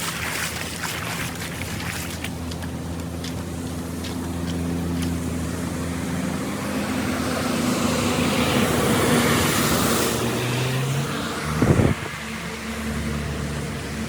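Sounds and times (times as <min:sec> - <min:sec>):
motor running steadily: 0:11.6 - 0:14.0.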